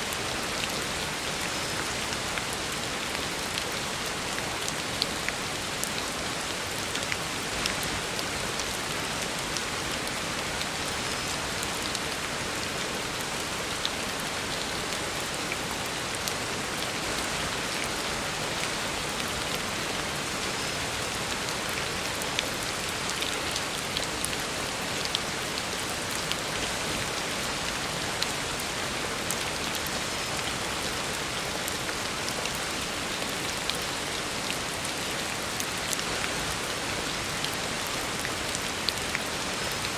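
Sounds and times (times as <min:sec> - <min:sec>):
heavy rain on a road: 0:00.0 - 0:39.9.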